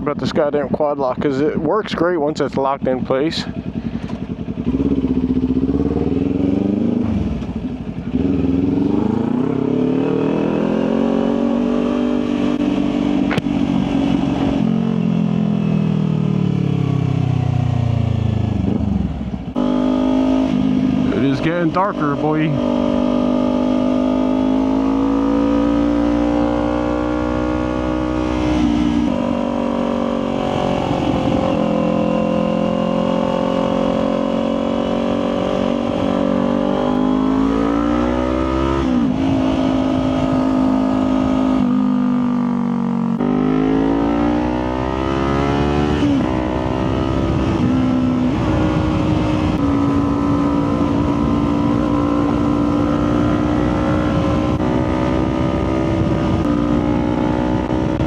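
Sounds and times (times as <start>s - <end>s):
motorcycle engine running: 0.0s - 58.0s
wind rumble on microphone: 30.2s - 32.6s, 34.9s - 42.5s, 44.4s - 58.0s.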